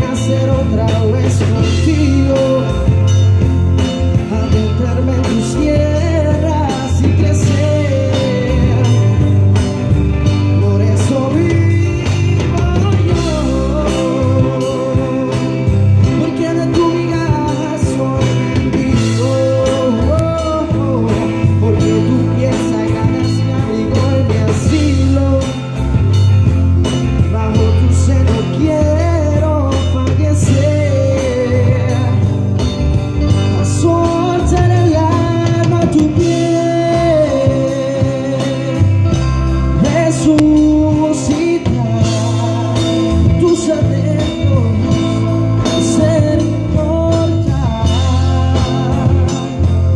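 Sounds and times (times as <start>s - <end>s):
bass: 0.0s - 49.9s
drums: 0.0s - 49.9s.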